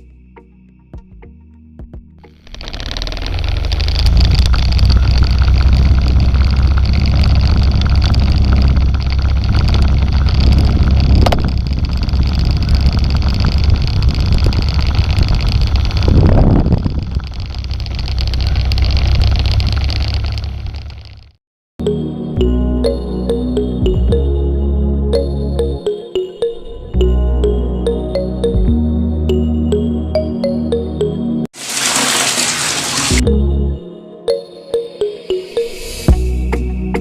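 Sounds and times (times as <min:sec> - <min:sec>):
motor running with low hum: 0:02.4 - 0:21.2.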